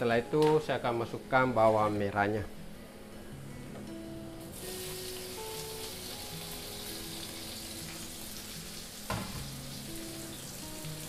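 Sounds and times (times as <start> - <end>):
soft background music: 0.0 - 11.0
shallots sizzling in hot oil: 4.4 - 11.0.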